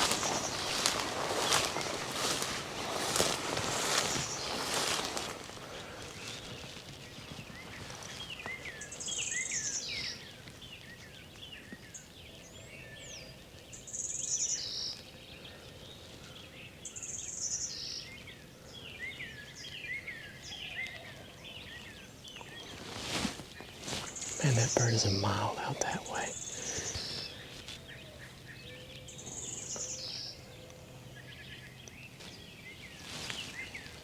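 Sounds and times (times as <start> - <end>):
high buzzy bird song: 0.0 - 5.2.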